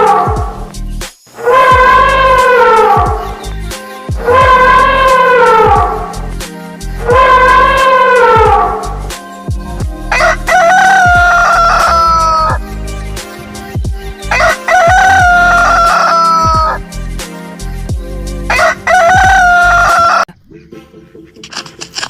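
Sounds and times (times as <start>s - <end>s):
low repeating background beat: 0.0s - 22.0s
rooster crowing: 1.4s - 3.2s, 4.2s - 6.2s, 7.0s - 8.9s, 10.1s - 12.6s, 14.3s - 16.8s, 18.5s - 20.3s.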